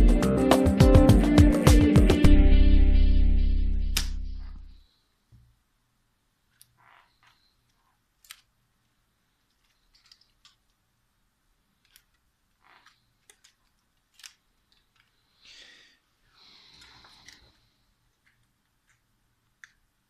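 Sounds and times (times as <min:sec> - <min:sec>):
small tools clicking and scraping: 0:09.4 - 0:10.7, 0:11.8 - 0:15.2.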